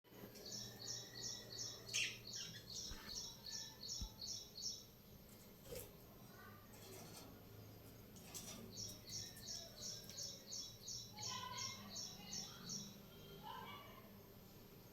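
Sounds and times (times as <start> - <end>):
small bird chirping: 0.3 - 5.8, 8.2 - 13.7.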